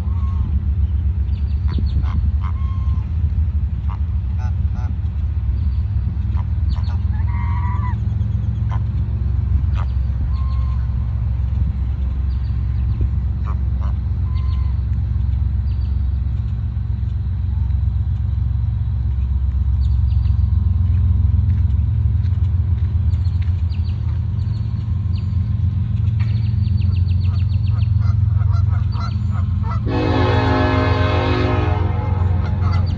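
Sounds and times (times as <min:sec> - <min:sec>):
loud low rumble: 0:00.0 - 0:32.9
waterfowl honking: 0:01.7 - 0:03.1, 0:28.0 - 0:32.9.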